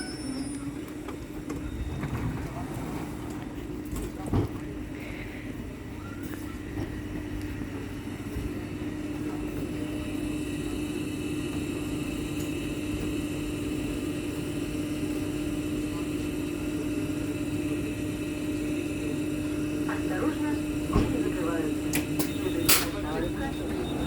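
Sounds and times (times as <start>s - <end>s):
train electrical hum: 0.0s - 24.0s.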